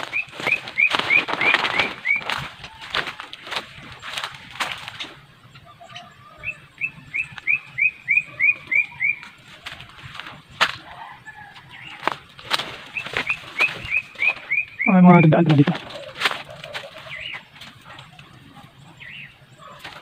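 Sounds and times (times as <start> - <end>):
bird chirping: 0.0 - 2.8, 3.4 - 20.0
sharp rustles: 0.0 - 5.2, 15.6 - 18.0.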